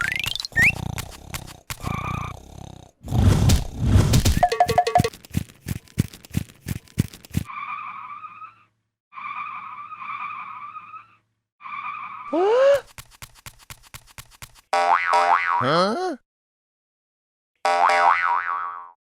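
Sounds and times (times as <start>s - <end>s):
quick blips: 0.0s - 2.0s, 3.4s - 7.5s.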